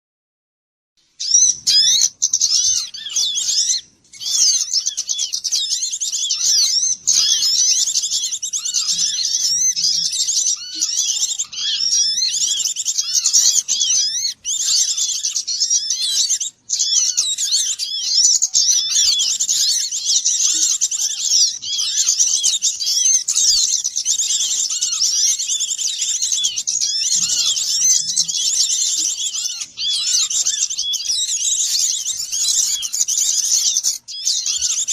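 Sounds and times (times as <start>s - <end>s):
flock of small birds chirping: 1.0s - 34.9s.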